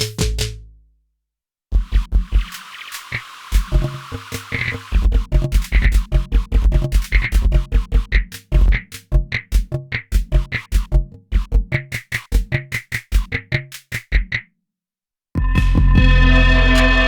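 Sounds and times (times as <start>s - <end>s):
deep kick drum hits: 15.4s - 16.3s
short pitched tom tones: 15.4s - 17.0s.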